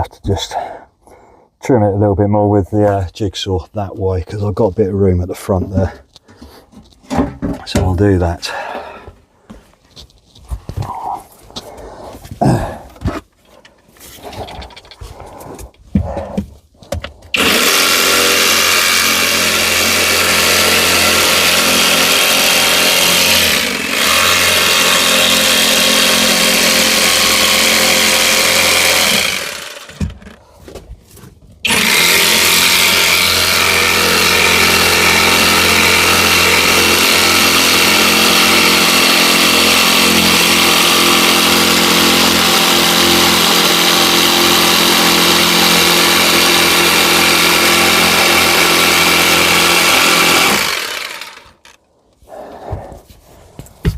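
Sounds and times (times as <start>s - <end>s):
electric jigsaw cutting: 17.3s - 30.2s, 31.6s - 51.8s.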